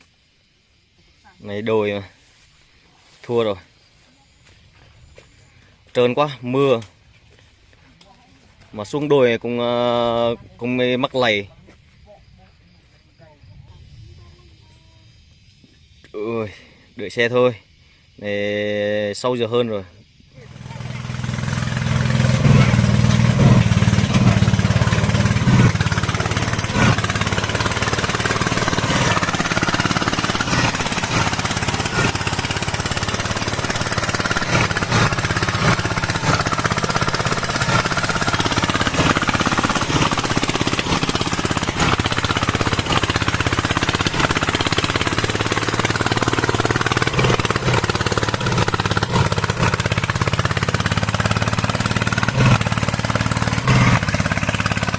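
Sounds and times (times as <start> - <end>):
diesel engine chugging: 20.1 - 54.9.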